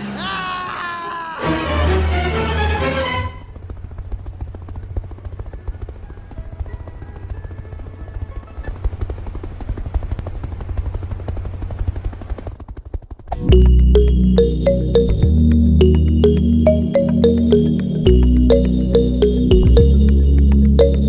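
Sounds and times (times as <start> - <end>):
music: 1.4 - 3.5, 13.4 - 21.0.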